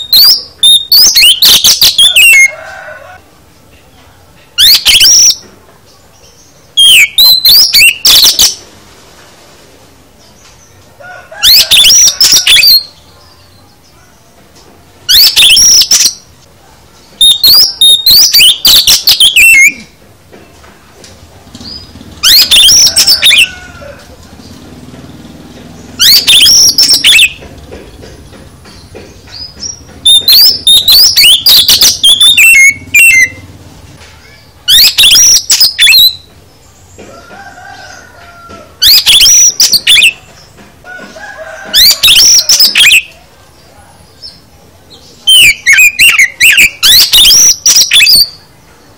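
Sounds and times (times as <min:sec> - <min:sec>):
bird singing varied high notes: 0:00.0 - 0:02.5, 0:04.5 - 0:05.4, 0:06.2 - 0:08.6, 0:11.4 - 0:13.7, 0:15.0 - 0:16.3, 0:17.2 - 0:20.0, 0:21.5 - 0:23.5, 0:25.8 - 0:27.4, 0:28.7 - 0:33.5, 0:34.2 - 0:36.7, 0:38.8 - 0:40.5, 0:41.8 - 0:43.2, 0:45.1 - 0:48.5.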